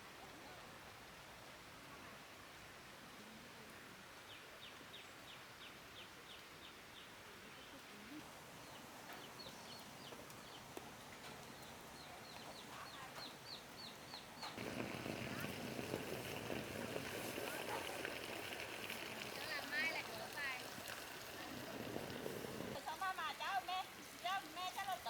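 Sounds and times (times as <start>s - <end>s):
faint outdoor hiss: 0.0s - 25.0s
bird chirping: 8.6s - 10.7s, 11.4s - 14.6s.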